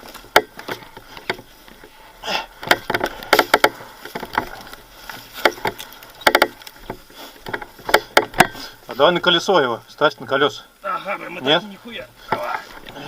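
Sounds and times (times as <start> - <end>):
sharp knocks and clatter: 2.6 - 8.7.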